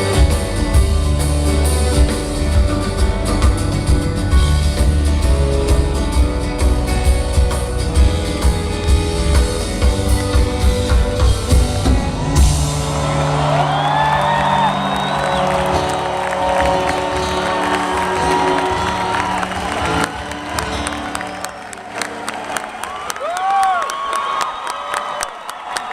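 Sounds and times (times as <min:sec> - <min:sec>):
live rock band playing: 0:00.0 - 0:22.3
crowd cheering and whistling: 0:08.8 - 0:25.9.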